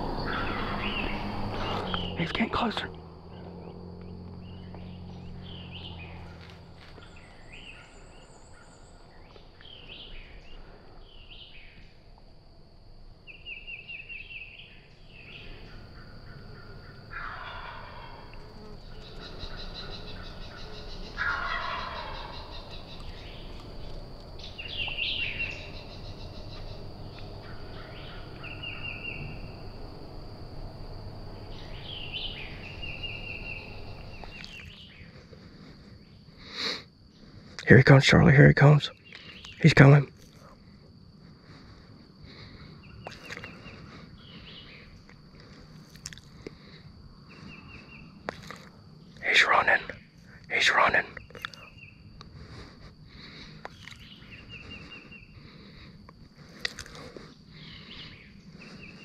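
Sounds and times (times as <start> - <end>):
faint songbird trill: 0.0 - 12.1, 13.2 - 59.0
turkey gobbling: 15.6 - 24.0
turkey yelps: 16.0 - 23.3.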